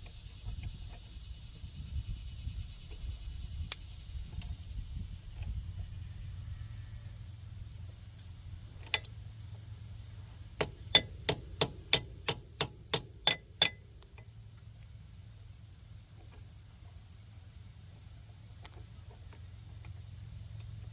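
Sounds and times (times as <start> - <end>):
hammer tapping on metal: 10.6 - 13.8.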